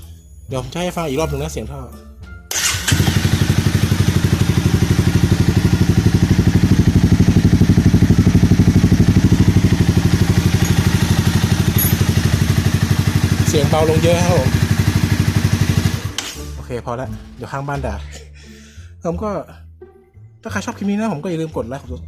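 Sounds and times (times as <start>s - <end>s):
motorcycle engine idling: 2.5s - 16.3s.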